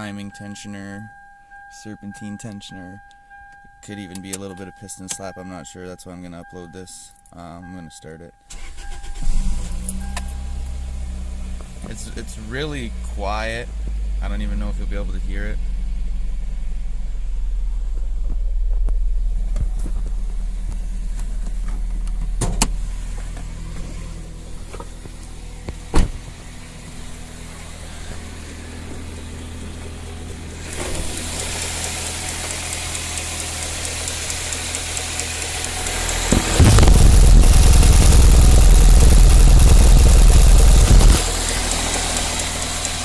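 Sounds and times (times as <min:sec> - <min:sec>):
car engine idling: 0:08.6 - 0:43.0
quiet ticking: 0:29.7 - 0:36.5, 0:38.6 - 0:43.0
sharp clicks: 0:30.8 - 0:43.0
loud hiss: 0:35.5 - 0:42.0.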